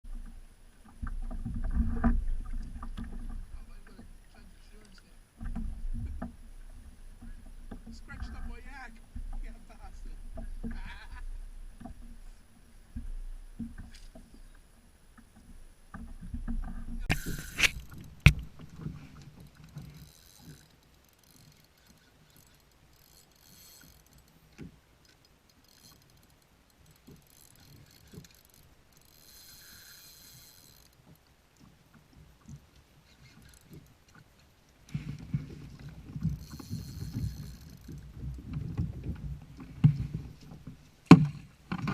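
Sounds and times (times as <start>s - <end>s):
short bursts of high hiss: 17.1s - 17.8s
handling and knocking on kayak: 38.0s - 41.9s.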